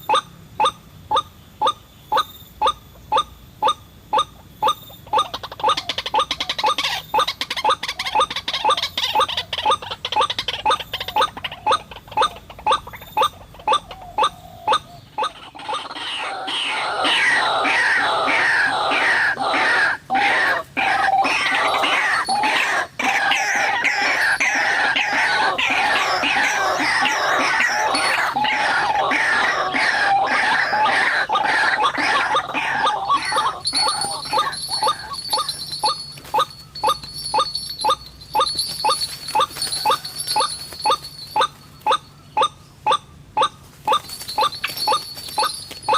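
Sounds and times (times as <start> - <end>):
waterhen harsh calls: 3.1 - 37.0.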